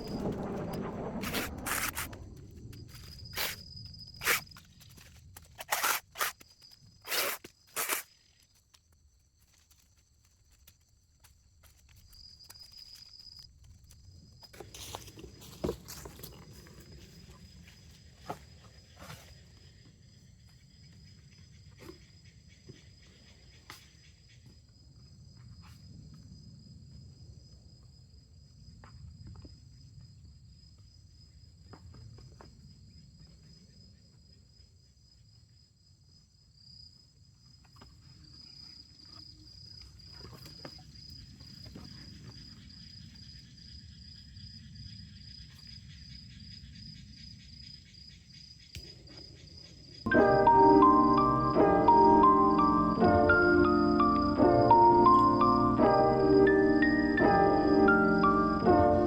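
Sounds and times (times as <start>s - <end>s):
low rumble: 0.0s - 4.2s
insects chirping: 0.0s - 59.0s
music: 50.1s - 59.0s.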